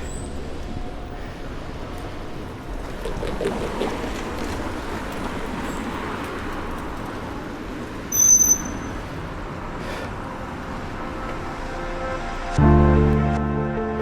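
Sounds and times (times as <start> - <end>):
street traffic noise: 0.0 - 14.0
loud high-pitched squeal: 8.1 - 9.2.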